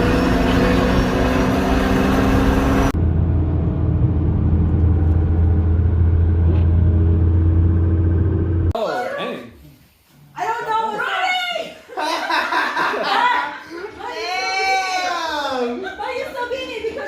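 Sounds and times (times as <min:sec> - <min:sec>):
deep low drone: 0:00.0 - 0:08.7
car engines and exhaust: 0:00.0 - 0:08.8.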